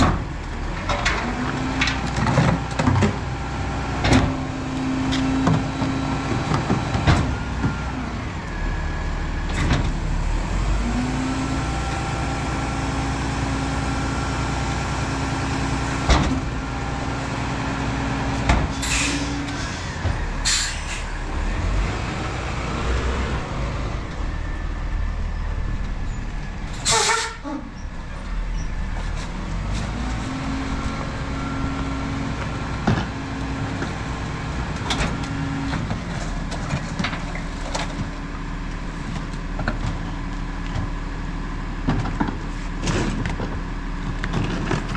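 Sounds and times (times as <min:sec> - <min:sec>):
garbage truck engine running: 0:00.0 - 0:44.9
air brake hisses: 0:18.8 - 0:21.2, 0:26.8 - 0:27.4.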